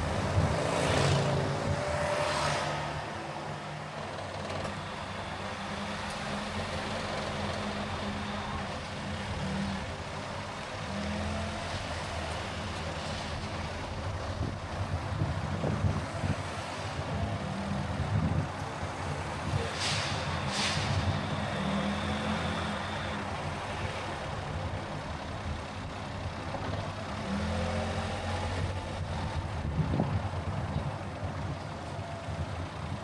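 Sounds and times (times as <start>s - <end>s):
car engine and road noise: 0.0s - 33.0s
short hisses: 19.6s - 21.1s.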